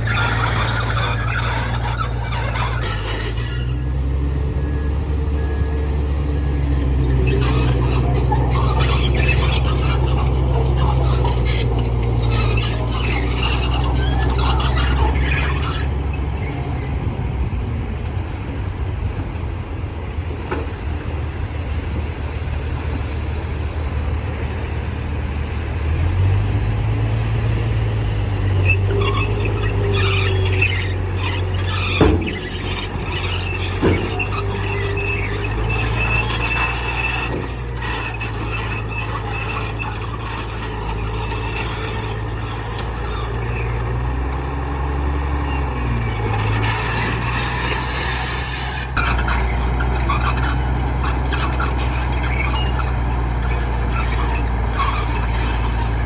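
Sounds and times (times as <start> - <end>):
steel tracks squealing and clanking: 0.0 - 5.7, 6.4 - 17.5, 20.4 - 56.0
diesel bulldozer engine running: 0.0 - 56.0.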